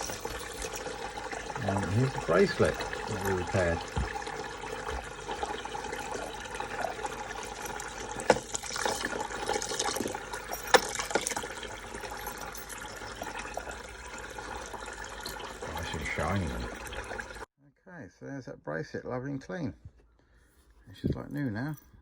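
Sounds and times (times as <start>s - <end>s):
water running from a tap: 0.0s - 17.5s.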